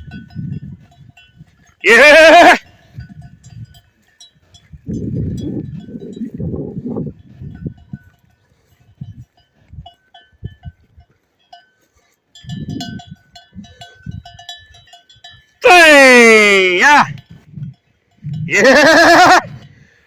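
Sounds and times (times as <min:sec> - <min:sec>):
livestock bells clanking: 0:00.0 - 0:20.0
low rumbling on microphone: 0:04.6 - 0:08.1.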